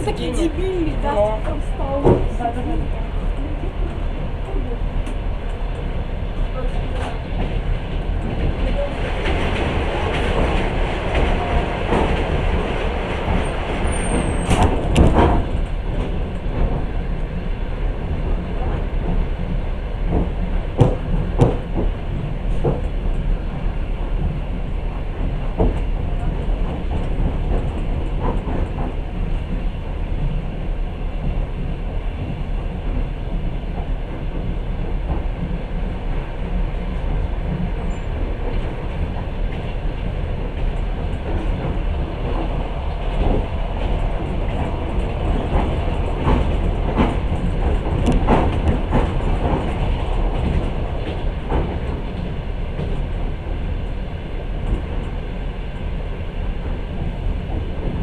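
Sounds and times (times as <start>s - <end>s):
train wheels rumbling on rails: 0.0s - 58.0s
sharp clacks and knocks: 20.1s - 22.0s, 40.6s - 53.2s.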